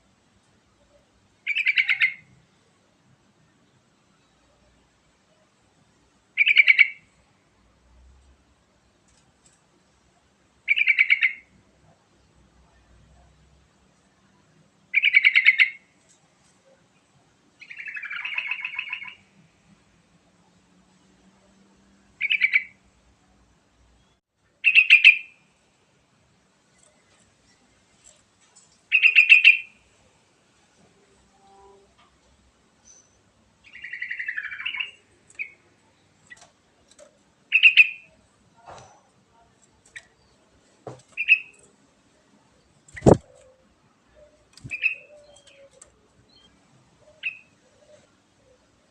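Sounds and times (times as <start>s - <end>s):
bird singing bubbly phrases: 42.9s - 43.4s.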